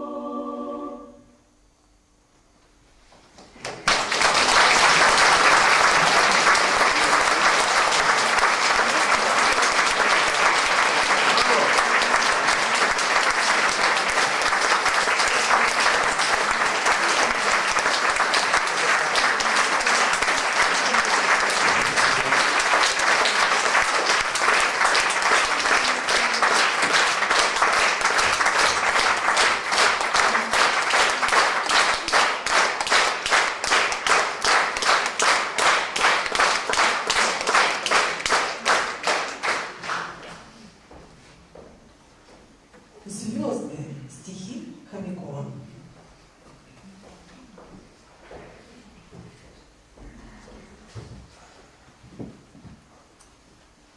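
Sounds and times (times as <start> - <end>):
audience applause: 3.6 - 40.5
rhythmic unison clapping: 3.6 - 40.5.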